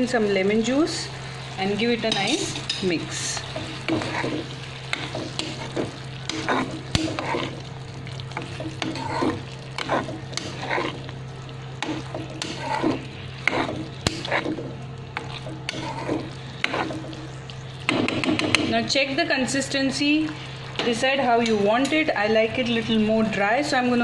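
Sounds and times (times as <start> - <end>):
light sizzle of frying: 0.0 - 24.0
spatula scraping a pan: 1.4 - 11.2, 11.8 - 18.6.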